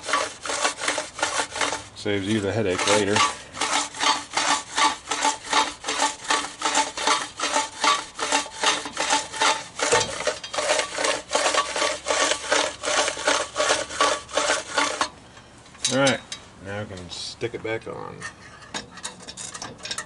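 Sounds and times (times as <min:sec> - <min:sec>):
recoil starter rasping: 0:00.0 - 0:15.1.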